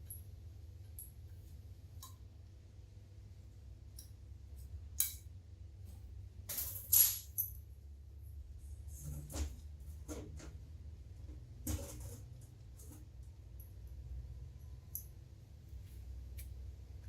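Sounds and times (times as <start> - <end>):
metal tools clinking: 6.5 - 7.6.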